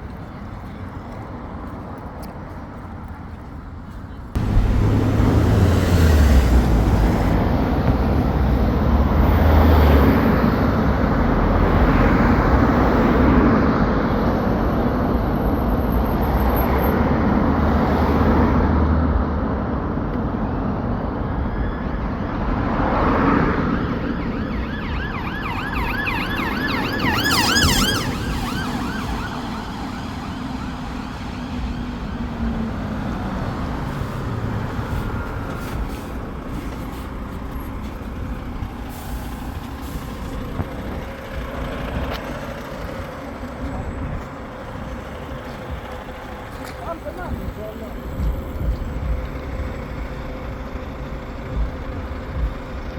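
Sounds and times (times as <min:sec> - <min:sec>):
heavy road traffic rumble: 0:00.0 - 0:52.9
police siren: 0:21.2 - 0:35.8.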